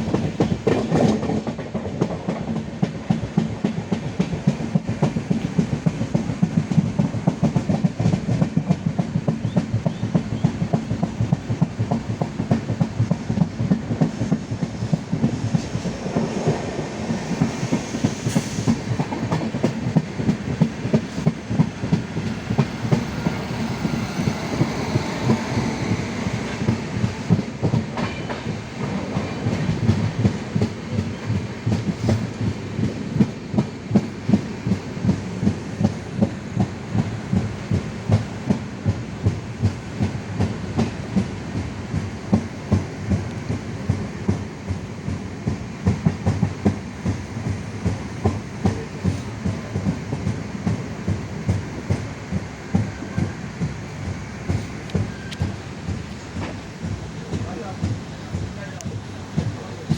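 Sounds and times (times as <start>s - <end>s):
train rumbling on track: 0.0s - 59.9s
wheels clacking over rail joints: 0.0s - 59.9s.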